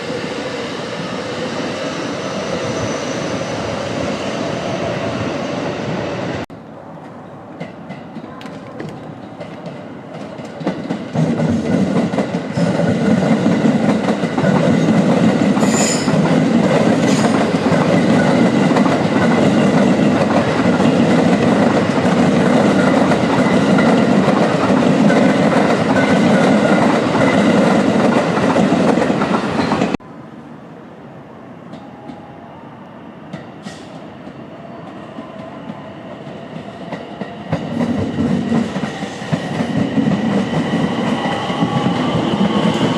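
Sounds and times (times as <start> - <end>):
train passing with wheel clatter: 0.0 - 42.9.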